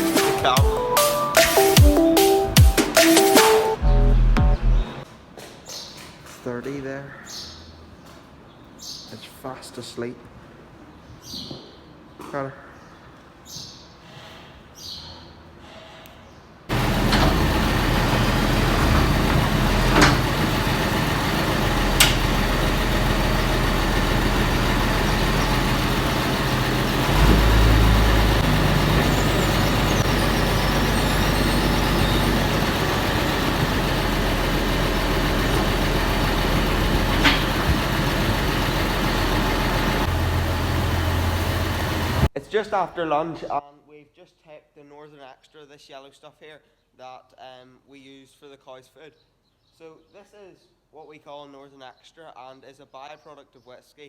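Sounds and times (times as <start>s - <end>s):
tractor engine humming: 0.0s - 5.0s, 16.7s - 42.3s
sharp clicks or knocks: 21.9s - 22.4s.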